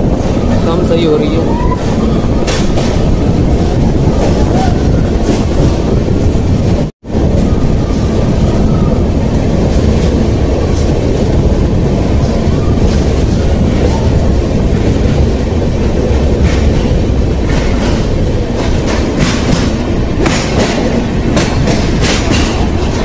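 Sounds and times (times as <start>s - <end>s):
train wheels rumbling in tunnel: 0.0s - 23.0s
wheels clicking over rail joints: 15.9s - 23.0s.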